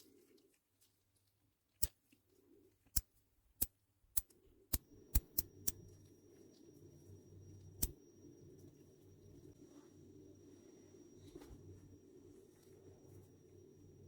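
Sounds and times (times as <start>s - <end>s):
faint low hum: 4.2s - 14.0s.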